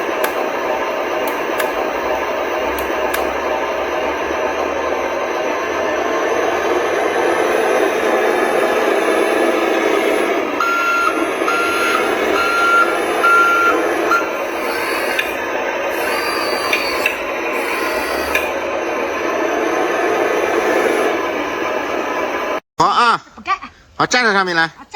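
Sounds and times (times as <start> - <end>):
reversing beeper: 1.4 - 22.6
toy vehicle motor whirring: 7.3 - 18.6.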